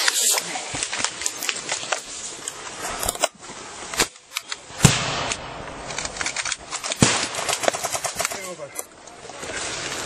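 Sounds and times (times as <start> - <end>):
airsoft gun shots: 4.8 - 5.6, 6.9 - 8.2.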